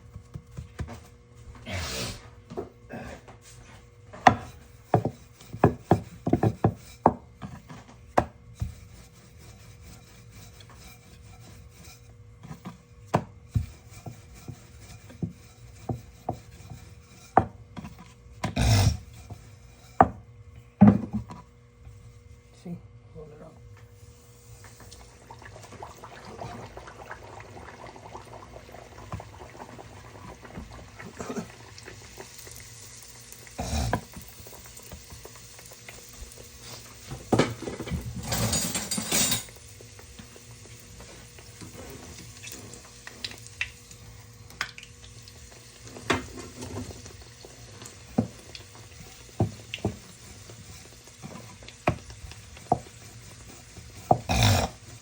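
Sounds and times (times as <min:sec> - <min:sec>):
hot oil sizzling in a pan: 0:24.1 - 0:38.2, 0:38.8 - 0:55.0
utensils clinking against pans: 0:37.0 - 0:39.6.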